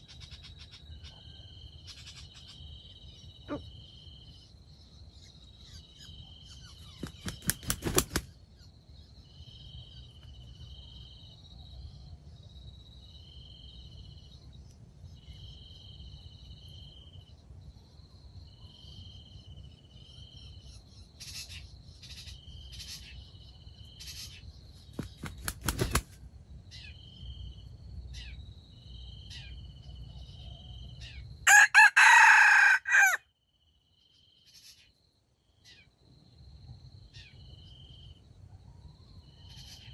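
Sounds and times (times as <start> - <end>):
insects chirping: 0.0 - 39.9
wings flapping: 6.9 - 8.3, 24.8 - 26.2
rooster crowing: 31.5 - 33.2.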